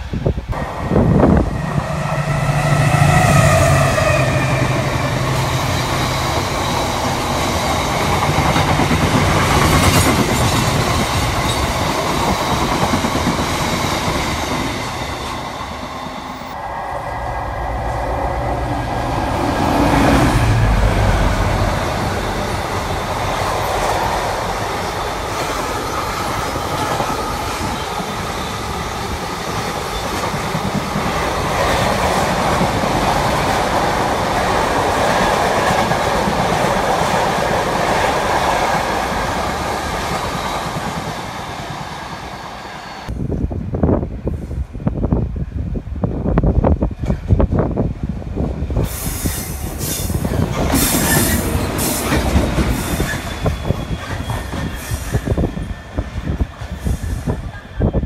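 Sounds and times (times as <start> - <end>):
locomotive engine rumbling: 0.6 - 12.0, 14.7 - 26.6
train horn: 1.7 - 5.4.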